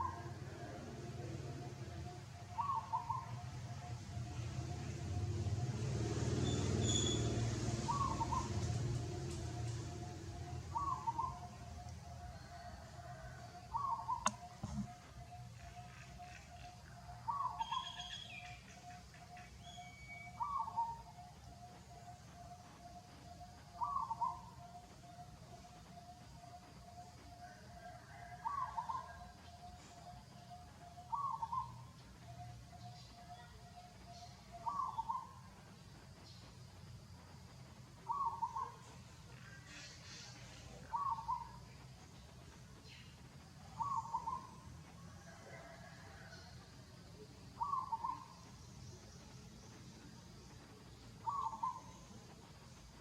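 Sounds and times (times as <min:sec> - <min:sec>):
bird calling: 0:02.5 - 0:03.4, 0:10.6 - 0:11.7, 0:39.7 - 0:41.6, 0:47.6 - 0:48.4, 0:51.2 - 0:52.0.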